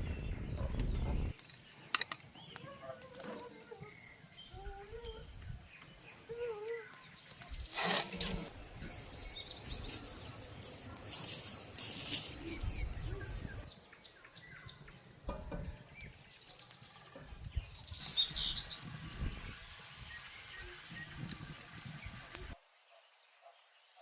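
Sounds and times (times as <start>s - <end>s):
birds chirping: 0.0s - 24.0s
rustling and fluttering: 6.5s - 13.7s.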